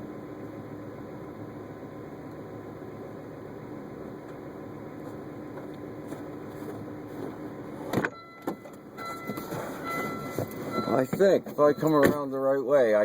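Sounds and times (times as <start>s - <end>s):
car idling: 0.0s - 13.0s
car door shutting: 7.8s - 12.2s.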